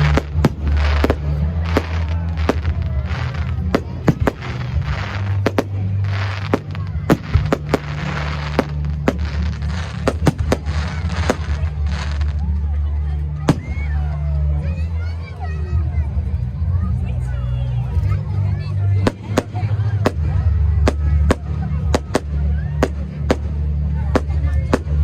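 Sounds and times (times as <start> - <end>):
fireworks cracking and popping: 0.0 - 12.6, 13.4 - 14.0, 19.0 - 25.0
fireworks hissing crackle: 0.0 - 12.6.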